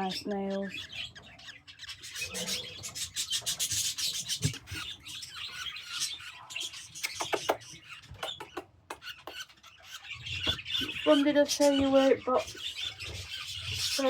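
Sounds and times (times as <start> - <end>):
budgie chirps: 5.4 - 11.2.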